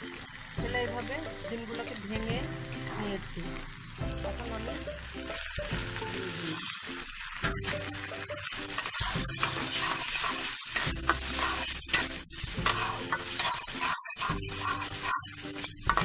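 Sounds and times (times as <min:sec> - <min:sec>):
fish roe sizzling in oil: 0:00.0 - 0:16.0
metal spatula scraping pan: 0:07.6 - 0:16.0.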